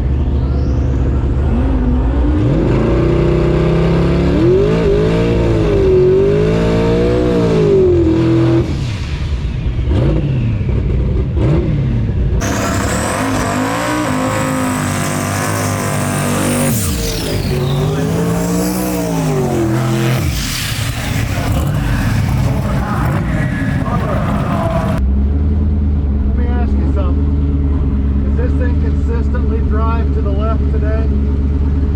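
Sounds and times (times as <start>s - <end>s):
engine throttle blips: 0.0s - 31.9s
race car engines revving: 0.0s - 31.9s.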